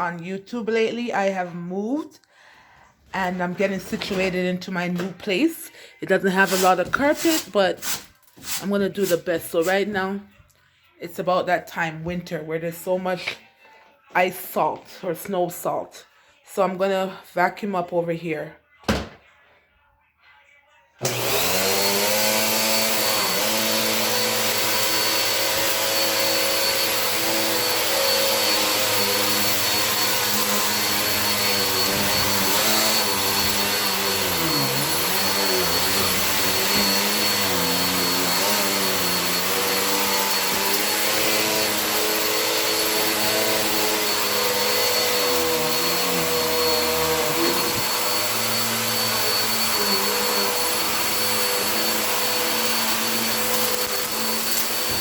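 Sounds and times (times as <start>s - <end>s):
vacuum cleaner running: 6.3s - 9.7s, 21.0s - 55.0s.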